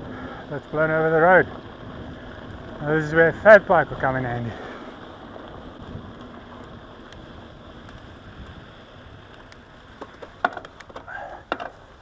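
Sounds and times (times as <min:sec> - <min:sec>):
rushing noise of bike riding: 0:00.0 - 0:12.0
sharp clicks and knocks: 0:09.5 - 0:11.8.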